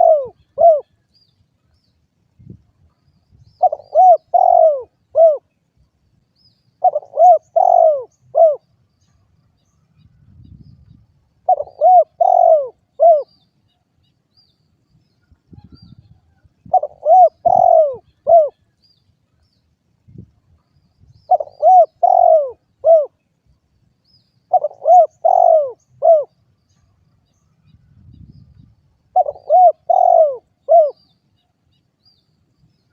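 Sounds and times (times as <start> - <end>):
dove cooing: 0.0 - 0.9, 3.6 - 5.5, 6.8 - 8.6, 11.4 - 13.3, 16.6 - 18.7, 21.3 - 23.2, 24.5 - 26.4, 29.1 - 31.1.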